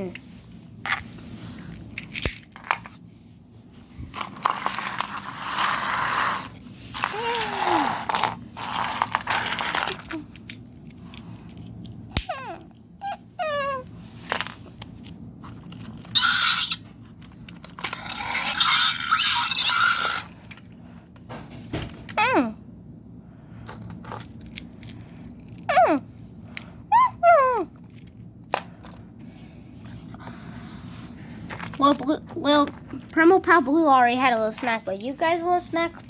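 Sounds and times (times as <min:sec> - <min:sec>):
toys rustling and crinkling: 0:00.0 - 0:12.8, 0:13.5 - 0:21.1, 0:23.6 - 0:26.8, 0:27.6 - 0:36.0
squeaky toy chirps falling in pitch: 0:16.1 - 0:16.8.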